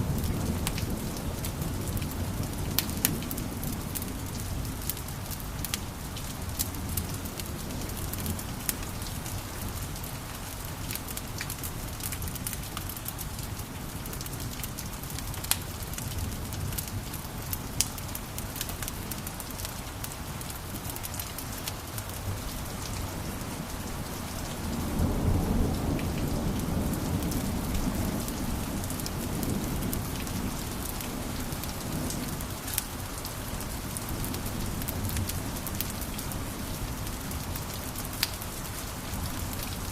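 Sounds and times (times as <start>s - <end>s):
wood fire crackling and popping: 14.1s - 16.9s, 17.8s - 22.2s.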